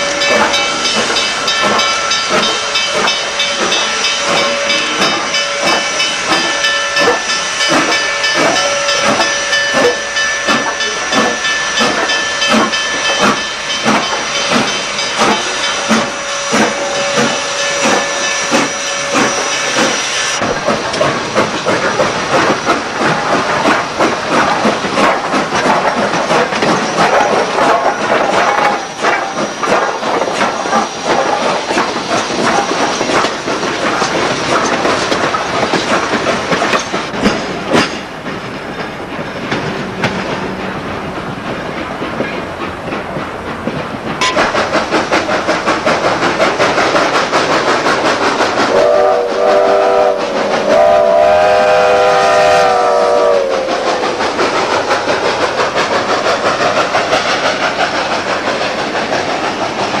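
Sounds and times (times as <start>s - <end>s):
train wheels clattering over rail joints: 0.0s - 60.0s
steam whistle blasts: 48.7s - 54.0s.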